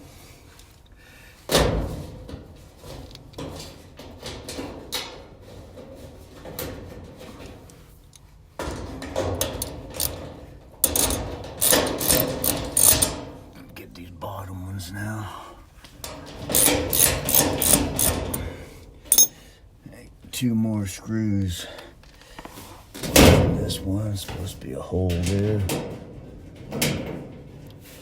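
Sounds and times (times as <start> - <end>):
sheet-metal panels knocking: 8.6 - 13.4, 16.1 - 18.3, 25.1 - 28.0.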